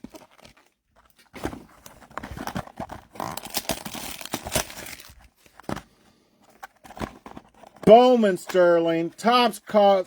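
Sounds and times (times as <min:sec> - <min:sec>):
plastic wrapping crinkling: 0:00.0 - 0:05.7.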